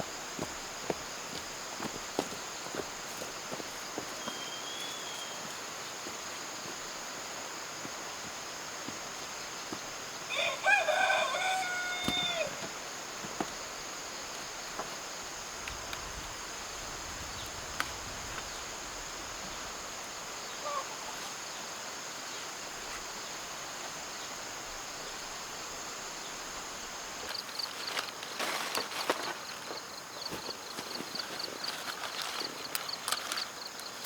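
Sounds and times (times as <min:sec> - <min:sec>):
outdoor hiss: 0:00.0 - 0:34.0
rustling: 0:27.3 - 0:34.0.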